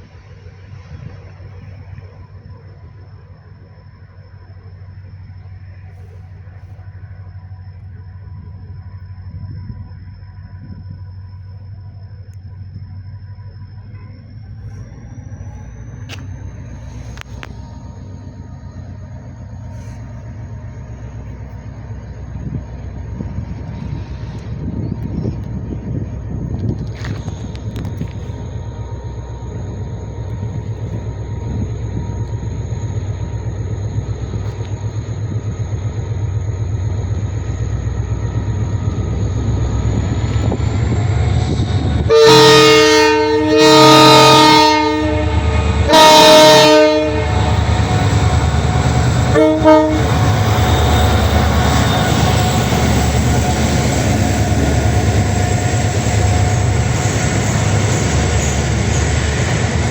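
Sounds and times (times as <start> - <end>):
diesel locomotive engine: 0.0 - 59.9
trembling locomotive horn blasts: 37.8 - 59.9.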